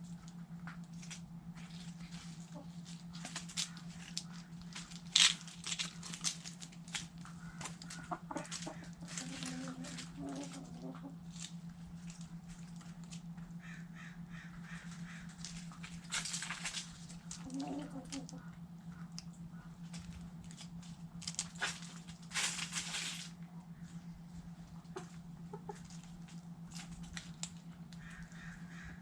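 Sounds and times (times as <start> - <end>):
chickens clucking: 0.0 - 29.0
chickens pecking: 0.0 - 29.0
chicken squawks: 7.3 - 11.2, 13.6 - 15.8, 17.3 - 18.6, 28.0 - 29.0.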